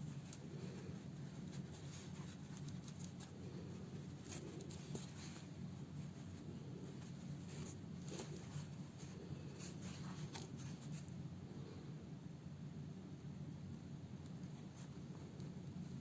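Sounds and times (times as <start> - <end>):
needle and thread through fabric: 0.0 - 11.3
steady low hum: 0.0 - 16.0.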